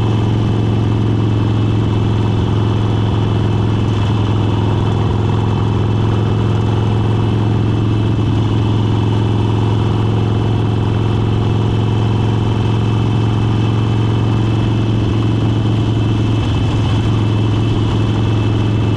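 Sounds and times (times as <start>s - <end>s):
motorcycle engine cruising: 0.0s - 18.9s.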